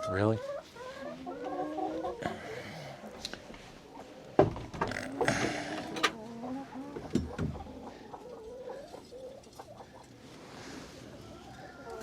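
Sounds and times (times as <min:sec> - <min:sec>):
hens clucking: 0:00.1 - 0:02.2, 0:03.8 - 0:10.1.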